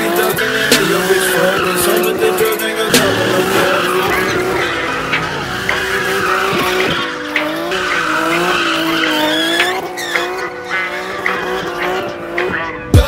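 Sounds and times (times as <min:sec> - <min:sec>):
car engine revving hard: 0:00.0 - 0:13.0
tyres screeching: 0:00.0 - 0:13.0.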